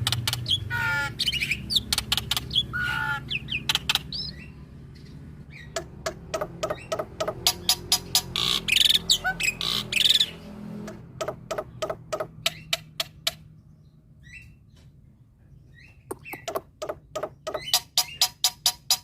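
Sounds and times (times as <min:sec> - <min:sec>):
starling singing sharp clicks: 0:00.0 - 0:02.7, 0:03.3 - 0:04.4, 0:15.8 - 0:18.6
faint bird calls: 0:00.0 - 0:10.4
harsh squawky bird burst: 0:00.3 - 0:04.4.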